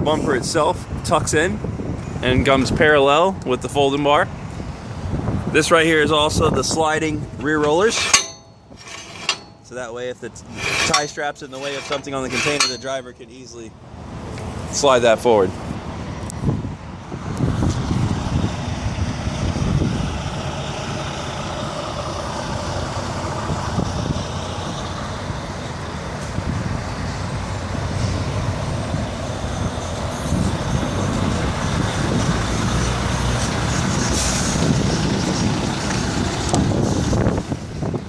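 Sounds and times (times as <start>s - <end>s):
diesel truck engine running: 16.8s - 38.0s.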